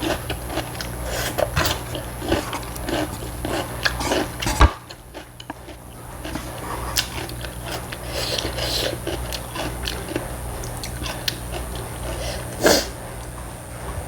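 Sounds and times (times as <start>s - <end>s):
chewing noodles: 0.0s - 13.4s.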